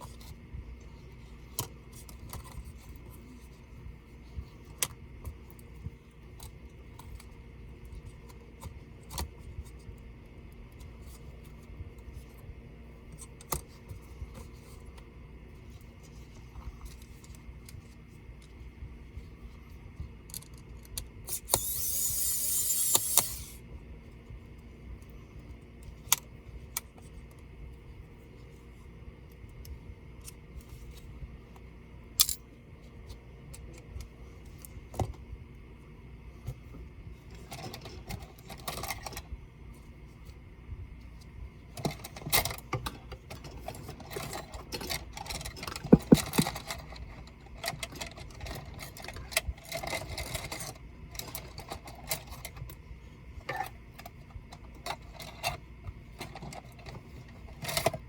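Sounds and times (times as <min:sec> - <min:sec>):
faint steady hum: 0:00.0 - 0:58.0
tools and laptop parts clicking: 0:20.3 - 0:23.6, 0:32.2 - 0:32.4, 0:44.1 - 0:47.0
hissing scrape: 0:21.5 - 0:23.6.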